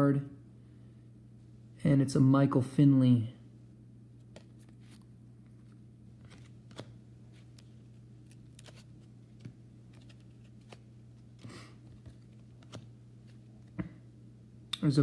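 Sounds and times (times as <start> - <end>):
steady low hum: 0.0 - 15.0
trading cards flipped by hand: 4.2 - 14.0.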